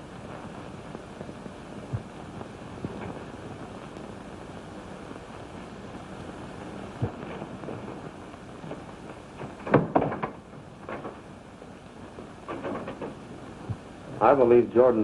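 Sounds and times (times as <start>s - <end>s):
film soundtrack hiss: 0.0s - 15.0s
sharp knocks: 9.4s - 11.2s.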